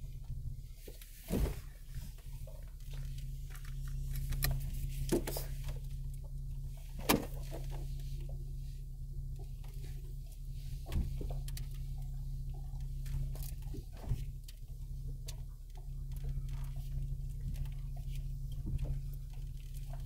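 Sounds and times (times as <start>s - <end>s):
engine low steady drone: 0.0s - 20.0s
sharp knocks and thumps: 1.2s - 1.8s.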